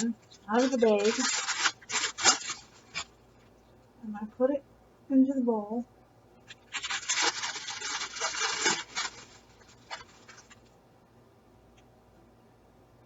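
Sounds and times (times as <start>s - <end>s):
plastic wrapper crinkling: 0.0s - 3.2s, 6.5s - 10.6s.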